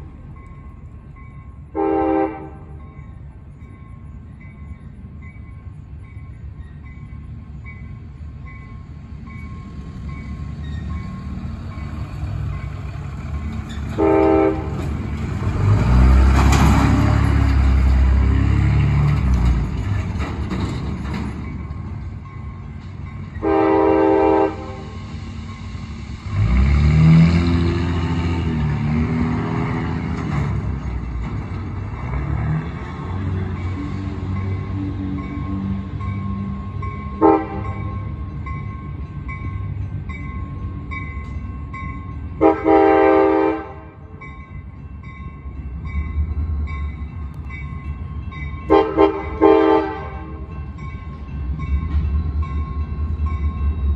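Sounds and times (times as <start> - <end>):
freight train rumbling: 0.0 - 53.9
train horn blasts: 1.7 - 2.8, 14.0 - 14.8, 23.4 - 25.0, 37.2 - 37.8, 42.4 - 44.1, 48.7 - 50.5.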